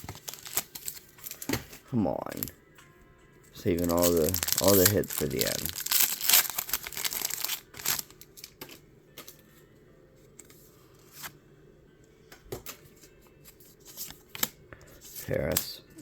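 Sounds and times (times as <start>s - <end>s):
cards rustling: 0.0s - 2.5s, 3.6s - 9.3s
cards clicking and sliding: 13.8s - 15.7s.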